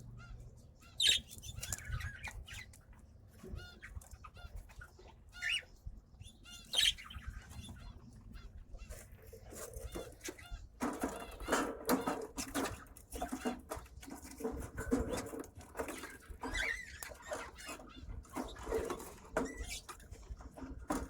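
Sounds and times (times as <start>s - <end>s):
parrots chirping: 0.0s - 2.8s, 3.5s - 12.2s, 15.8s - 20.0s.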